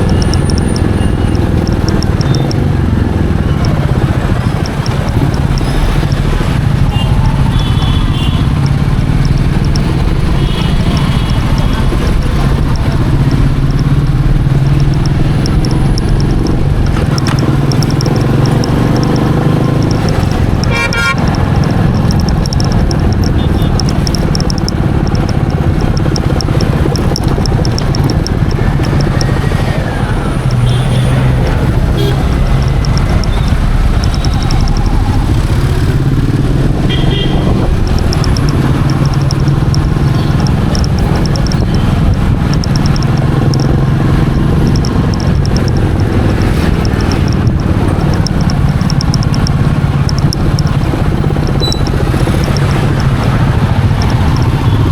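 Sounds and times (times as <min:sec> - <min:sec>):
motorcycle engine running: 0:00.0 - 0:54.9
vehicle horn toots: 0:20.6 - 0:21.4, 0:30.5 - 0:32.8, 0:36.8 - 0:37.5.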